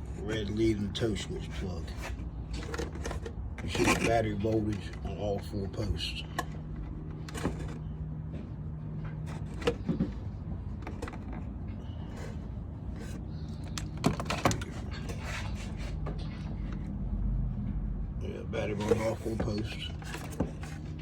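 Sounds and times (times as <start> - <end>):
test probes clicking and scraping: 9.0 - 16.9.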